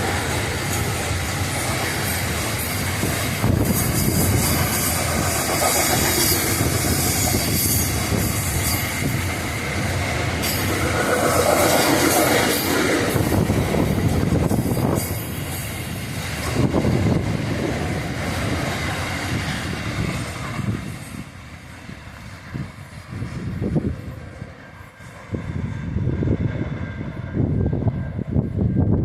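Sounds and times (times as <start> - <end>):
freight train wagons rolling on rails: 0.0 - 29.0.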